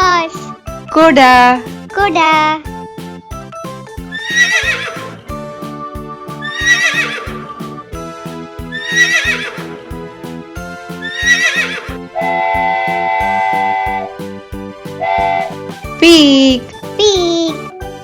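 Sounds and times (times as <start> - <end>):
children's music with steady beat: 0.0 - 18.0
horse neighing: 4.1 - 5.2, 6.4 - 7.4, 8.7 - 9.7, 11.0 - 13.4.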